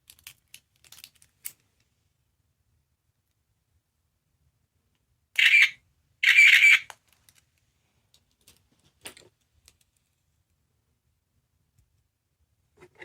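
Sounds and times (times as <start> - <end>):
toy speaker sound effect: 5.4 - 6.9.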